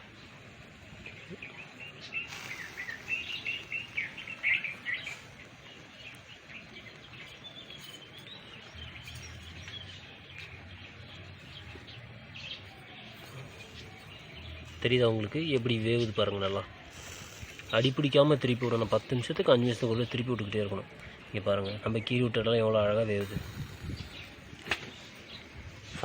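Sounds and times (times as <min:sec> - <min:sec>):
birds chirping: 0:00.0 - 0:26.0
outdoor background noise: 0:00.0 - 0:26.0
wavering bird call: 0:02.1 - 0:05.6.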